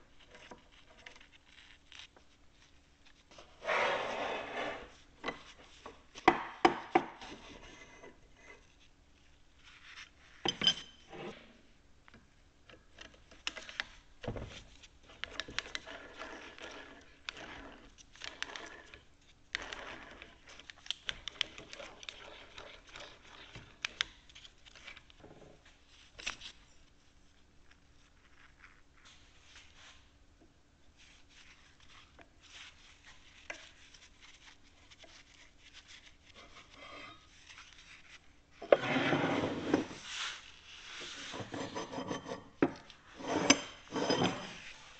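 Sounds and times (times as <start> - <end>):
metal-on-metal scraping: 41.1 - 44.8.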